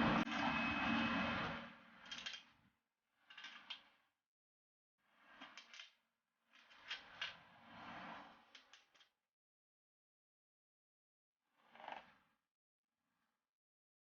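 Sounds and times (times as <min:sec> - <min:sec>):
faint mechanical clicks and rattles: 0:02.0 - 0:02.6, 0:03.3 - 0:04.0.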